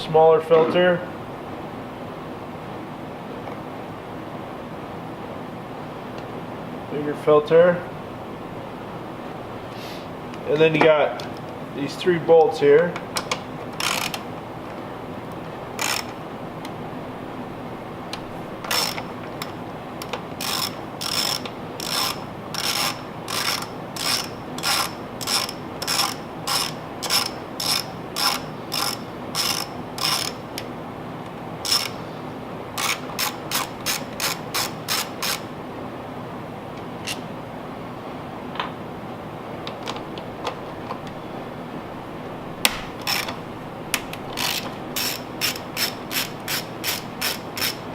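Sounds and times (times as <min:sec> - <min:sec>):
socket ratchet clicking: 0:13.2 - 0:14.2, 0:15.8 - 0:16.2, 0:18.6 - 0:30.7, 0:31.6 - 0:32.0, 0:32.8 - 0:35.4, 0:43.0 - 0:43.4, 0:44.4 - 0:47.8.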